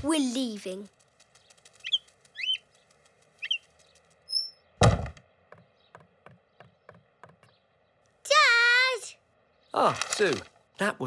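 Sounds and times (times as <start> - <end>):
loud thump: 4.8 - 5.2.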